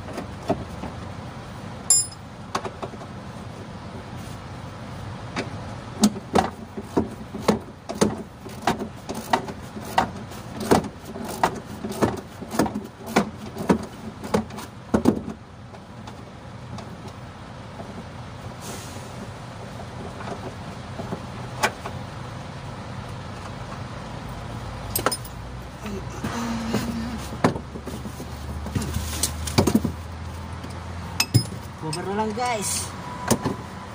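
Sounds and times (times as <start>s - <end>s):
metal knocks and clicks: 24.9s - 25.4s, 30.6s - 32.1s.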